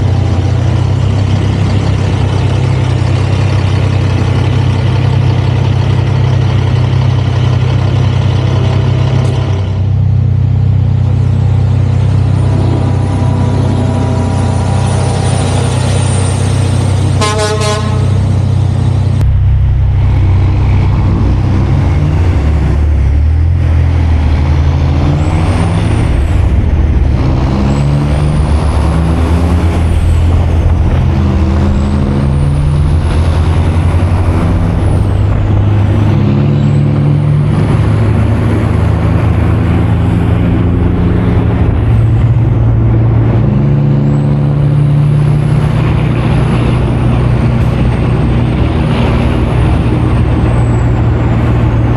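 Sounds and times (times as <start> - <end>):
diesel truck engine under load: 0.0 - 51.9
turbo whine: 10.6 - 51.9.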